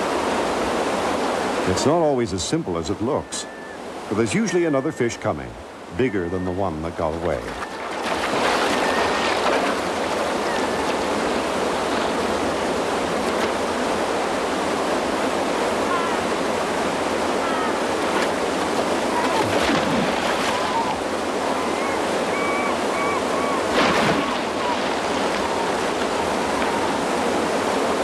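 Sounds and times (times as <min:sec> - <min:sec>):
waterfall rushing: 0:00.0 - 0:28.0
faint high calls: 0:02.9 - 0:06.9, 0:10.3 - 0:11.4, 0:15.8 - 0:16.4, 0:17.2 - 0:18.0, 0:20.4 - 0:27.3.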